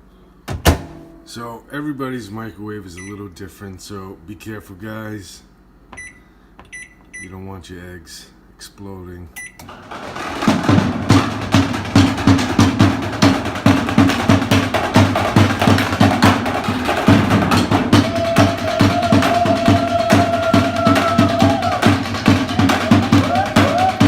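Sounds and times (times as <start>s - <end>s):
music with steady drum beat: 9.8s - 24.0s.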